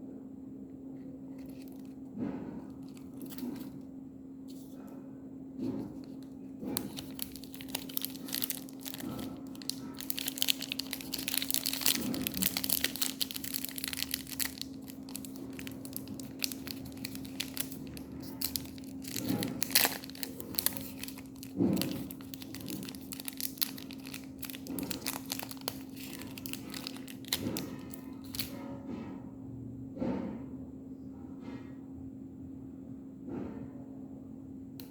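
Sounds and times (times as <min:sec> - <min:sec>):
wrappers crumpling and tearing: 0:01.4 - 0:02.0, 0:02.8 - 0:03.7, 0:06.0 - 0:28.5.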